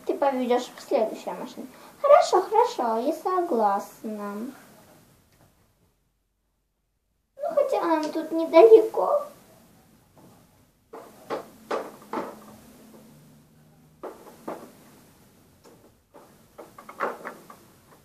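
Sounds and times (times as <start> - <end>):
toys clicking and knocking: 10.9 - 13.2, 14.0 - 14.8, 15.6 - 18.0.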